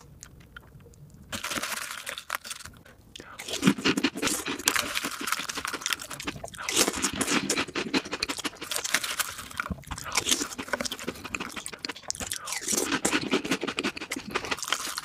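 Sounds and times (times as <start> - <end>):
wet chewing and crunching: 0.0 - 15.0.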